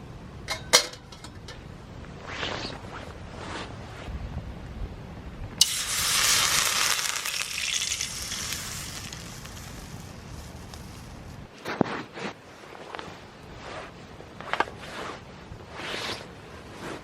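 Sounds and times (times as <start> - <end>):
food sizzling on a grill pan: 5.6 - 11.3.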